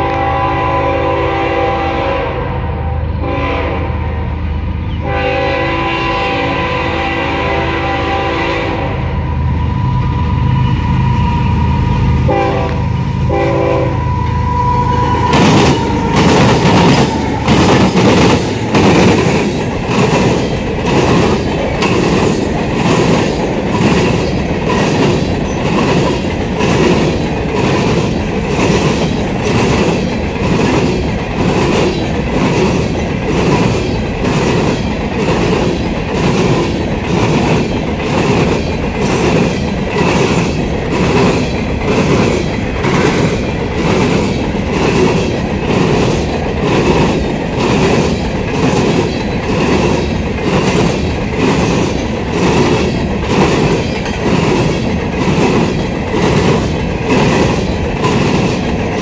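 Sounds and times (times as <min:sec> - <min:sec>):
train horn: 0:00.0 - 0:17.6
train wheels clacking: 0:11.1 - 0:59.0.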